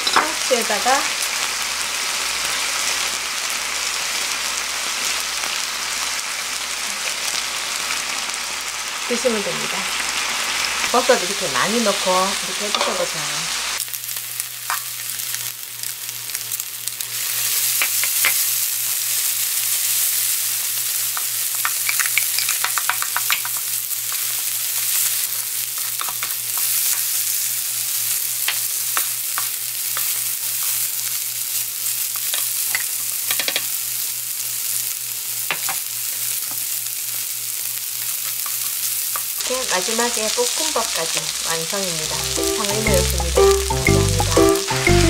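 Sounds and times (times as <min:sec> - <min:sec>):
food sizzling on a griddle: 0:00.0 - 0:43.7
utensils tapping and scraping griddle: 0:17.7 - 0:18.5, 0:21.1 - 0:24.4, 0:25.7 - 0:27.1, 0:28.4 - 0:31.0, 0:32.2 - 0:33.7.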